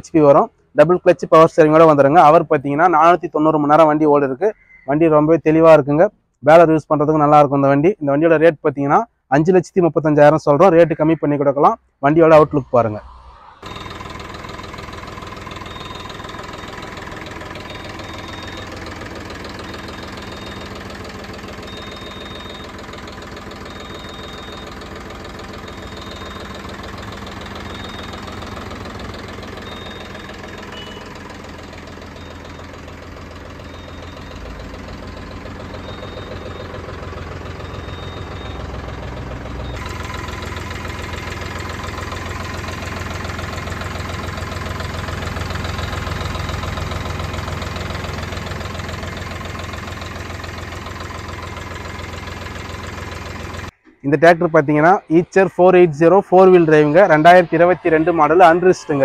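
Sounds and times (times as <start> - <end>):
tractor engine idling with clatter: 0.0 - 5.9, 13.6 - 59.0.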